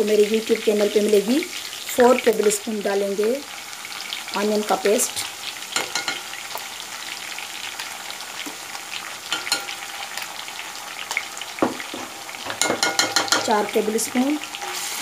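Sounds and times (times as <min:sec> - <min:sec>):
paste frying in hot oil: 0:00.0 - 0:15.0
spoon knocking against pan: 0:05.8 - 0:06.3, 0:09.3 - 0:09.8, 0:11.6 - 0:13.6.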